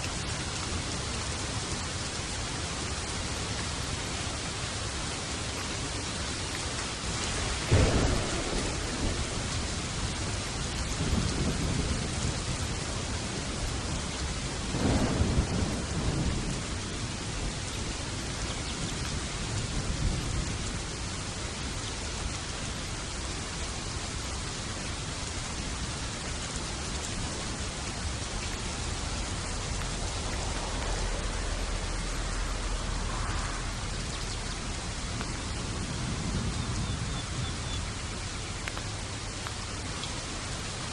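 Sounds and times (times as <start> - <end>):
steady rain: 0.0 - 40.9
rolling thunder rumble: 6.9 - 23.6, 24.4 - 40.9
thunderclap: 7.0 - 17.6, 27.9 - 37.6.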